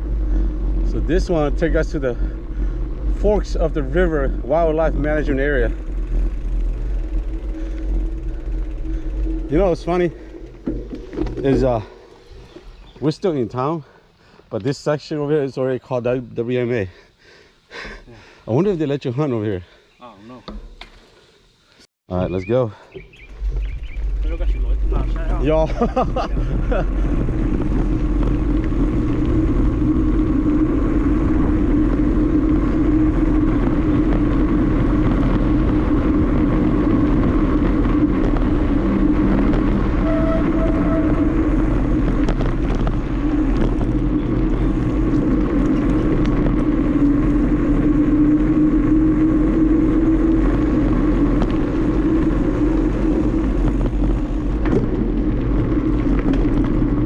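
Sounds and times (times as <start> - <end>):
bicycle tyre noise: 0.0 - 21.8, 22.4 - 57.0
wind on microphone: 23.0 - 57.0.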